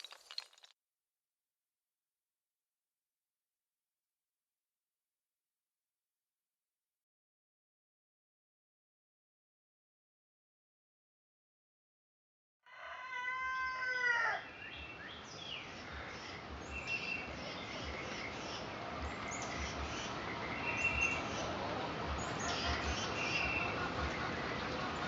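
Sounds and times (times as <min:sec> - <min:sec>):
rooster crowing: 0:12.6 - 0:14.5
small birds chirping: 0:14.4 - 0:25.0.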